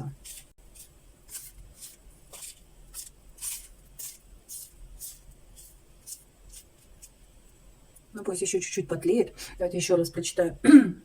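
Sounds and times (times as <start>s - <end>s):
fire crackling: 0.0s - 8.2s.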